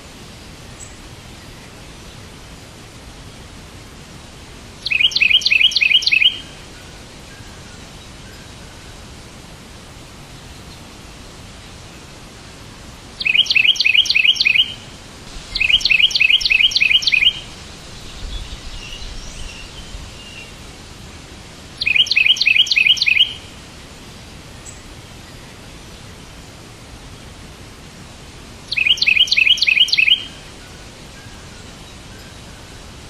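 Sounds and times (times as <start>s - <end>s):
background hiss: 0.0s - 33.0s
songbird chirping: 4.8s - 9.1s, 13.2s - 20.9s, 21.7s - 23.6s, 28.7s - 33.0s.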